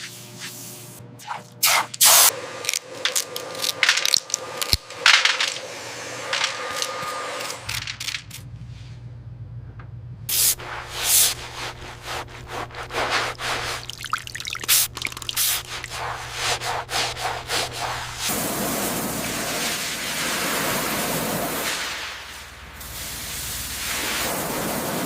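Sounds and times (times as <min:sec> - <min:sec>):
scraping and hissing strokes: 0:01.6 - 0:08.4, 0:10.3 - 0:25.0
steady low hum: 0:02.3 - 0:19.6.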